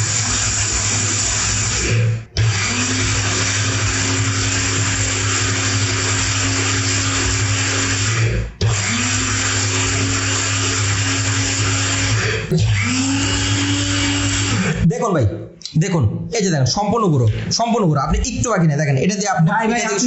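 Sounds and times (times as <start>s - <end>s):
electric spice grinder whirring: 0.0s - 14.9s.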